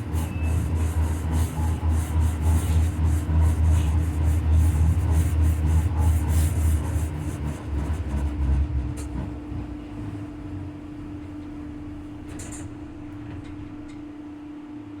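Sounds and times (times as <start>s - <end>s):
rhythmic wheel knocking: 0.0s - 9.4s
tram rumbling on rails: 0.0s - 14.2s
steady hum: 0.0s - 15.0s.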